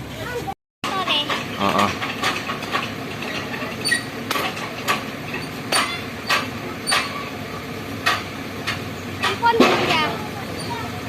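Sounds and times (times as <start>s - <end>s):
steady rumble: 0.0s - 11.0s
sharp knocks: 0.9s - 7.3s, 8.0s - 10.2s.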